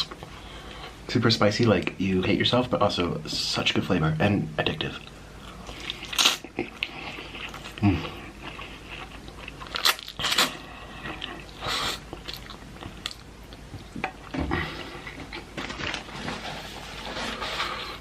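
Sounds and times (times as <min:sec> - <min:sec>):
person chewing: 0:05.0 - 0:16.1.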